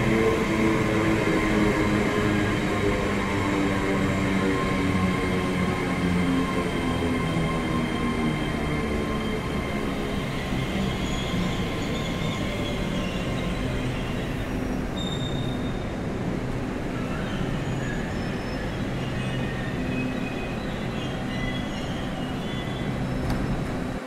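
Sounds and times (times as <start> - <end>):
high wheel squeals: 9.2 - 16.0.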